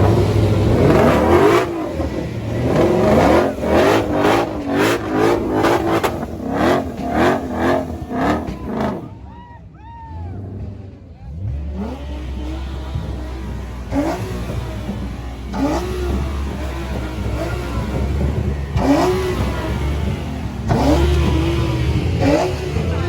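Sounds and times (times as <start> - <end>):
car engine revving in blips: 0.0 - 9.2, 10.5 - 23.0
engines idling: 0.0 - 23.0.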